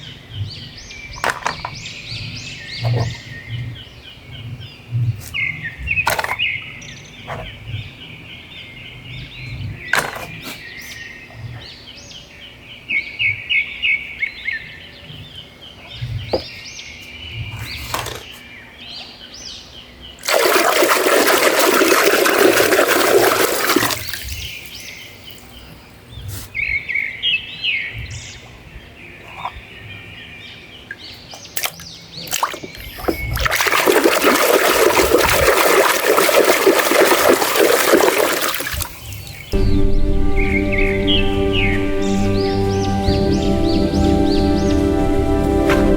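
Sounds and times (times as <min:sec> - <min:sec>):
water spraying: 0:20.2 - 0:25.6, 0:32.3 - 0:39.5
bird-like chirps: 0:24.0 - 0:28.5, 0:29.1 - 0:33.7.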